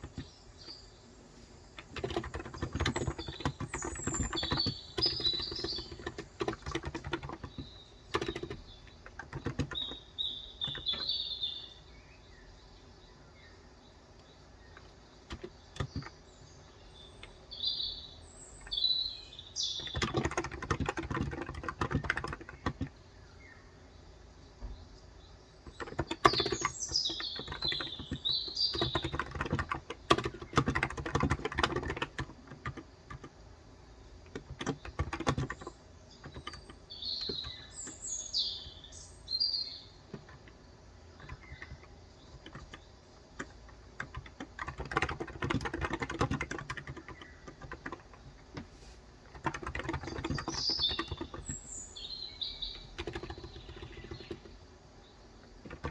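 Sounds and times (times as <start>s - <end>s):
typing on a keyboard: 0.0s - 0.8s, 1.8s - 11.2s, 14.7s - 16.2s, 17.2s - 17.4s, 19.6s - 23.0s, 25.6s - 33.4s, 34.2s - 38.9s, 39.9s - 51.7s, 52.6s - 54.7s, 55.4s - 55.9s
birds chirping: 0.0s - 55.9s.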